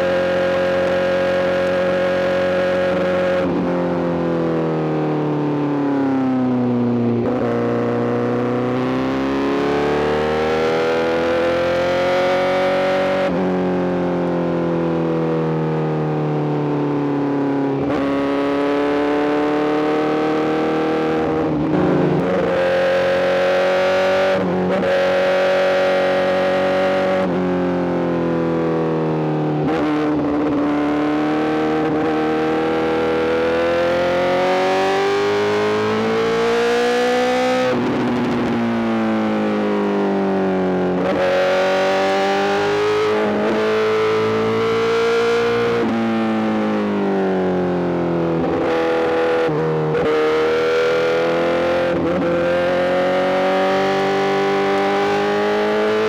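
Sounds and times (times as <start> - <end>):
motorcycle engine shifting gears: 19.8 - 27.1, 50.1 - 56.0.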